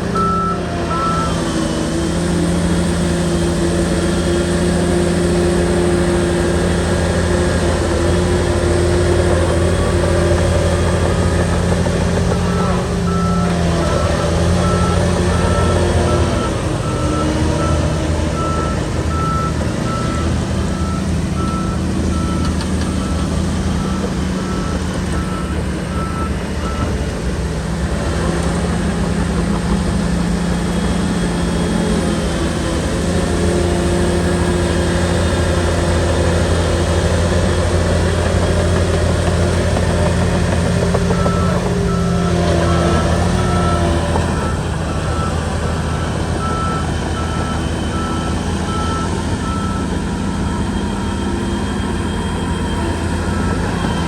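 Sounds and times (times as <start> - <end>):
reversing alarm beeping: 0.0 - 3.0, 3.7 - 27.1, 38.5 - 54.0
bulldozer diesel engine: 0.0 - 54.0.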